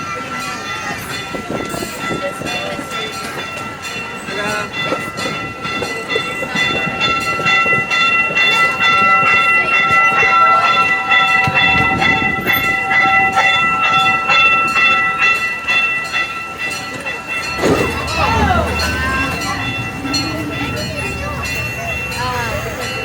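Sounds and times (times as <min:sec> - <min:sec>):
train wheels clicking over rails: 0:11.2 - 0:23.0.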